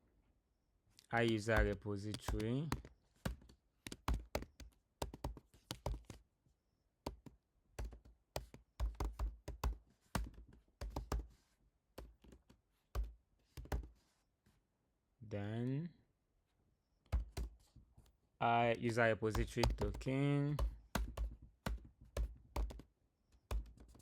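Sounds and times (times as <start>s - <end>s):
typing on a computer keyboard: 1.2s - 6.2s, 7.1s - 11.2s, 17.1s - 17.6s, 19.3s - 24.0s.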